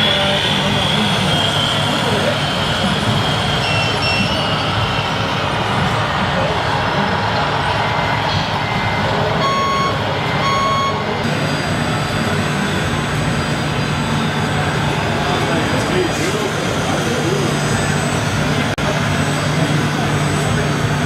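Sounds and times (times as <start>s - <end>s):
truck reversing beeper: 0.0s - 5.1s, 9.1s - 15.4s
engine rumble: 0.0s - 21.0s.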